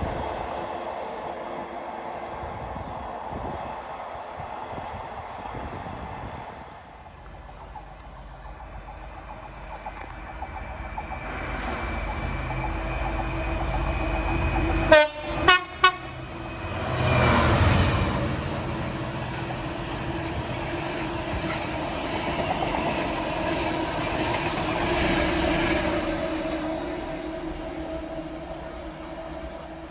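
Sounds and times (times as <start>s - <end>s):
train rumbling past: 0.0s - 29.9s
train horn blasts: 14.6s - 17.5s.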